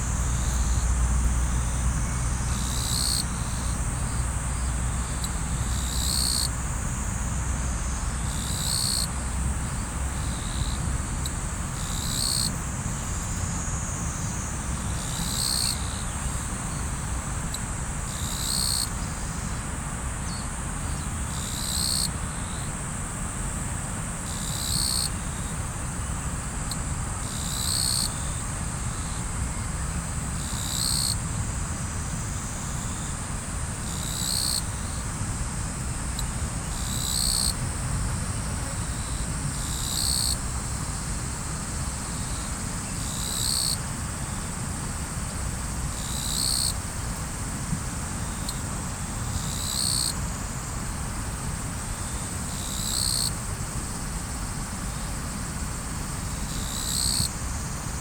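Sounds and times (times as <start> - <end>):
high insect trill: 0.0 - 58.0
loud insect call: 0.0 - 58.0.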